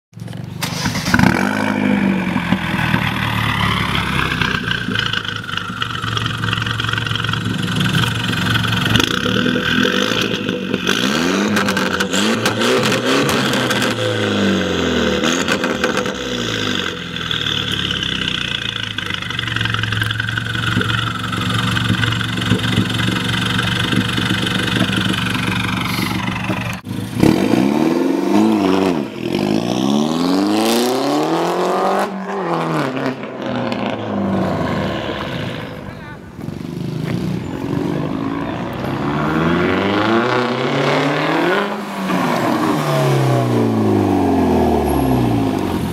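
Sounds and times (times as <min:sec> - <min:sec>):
car engine revving: 0:00.6 - 0:45.9.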